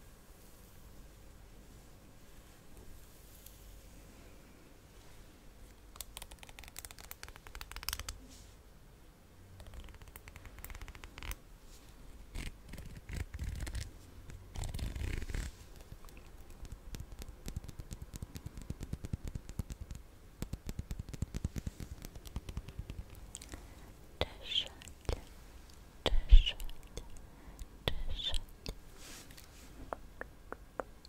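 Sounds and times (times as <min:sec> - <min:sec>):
scratching: 0:12.3 - 0:23.6.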